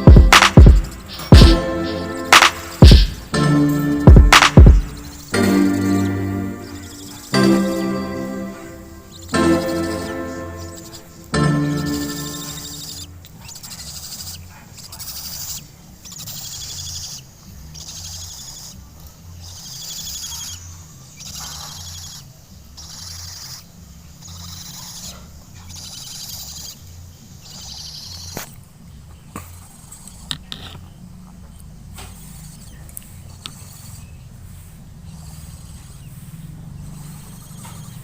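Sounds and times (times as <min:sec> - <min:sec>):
sharp clicks: 0:00.0 - 0:01.6, 0:02.3 - 0:03.3, 0:04.3 - 0:05.4
owl chicks hissing begging calls: 0:00.0 - 0:28.6, 0:29.3 - 0:38.0.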